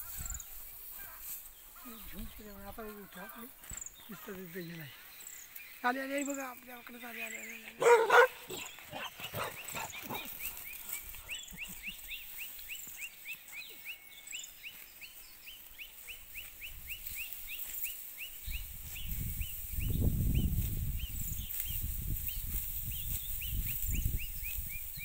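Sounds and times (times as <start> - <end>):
bird chirping: 1.6 - 25.0.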